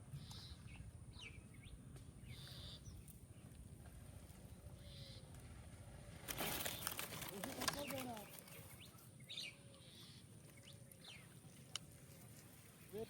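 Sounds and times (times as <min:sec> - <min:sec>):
faint bird calls: 0:04.7 - 0:05.4.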